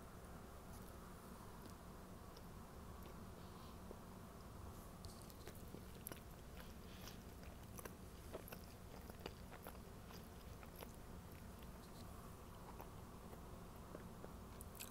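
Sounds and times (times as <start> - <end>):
low steady hum: 0.0 - 14.9
person chewing a sandwich: 4.9 - 14.9.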